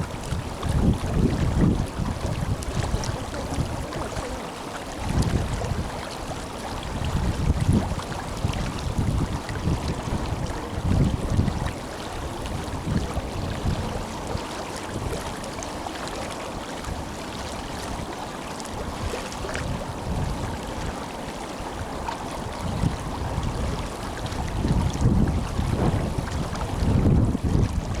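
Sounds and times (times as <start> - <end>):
river water rushing: 0.0 - 28.0
wind buffeting microphone: 0.0 - 28.0.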